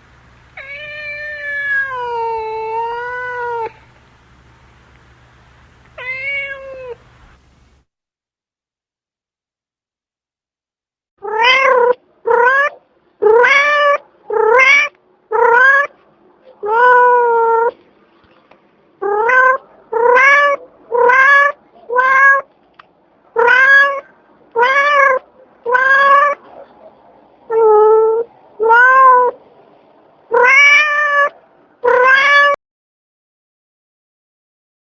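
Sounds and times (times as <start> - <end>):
cat meowing: 0.6 - 3.9, 6.0 - 7.0, 11.2 - 15.9, 16.6 - 17.8, 19.0 - 22.5, 23.4 - 26.5, 27.5 - 29.4, 30.3 - 32.6.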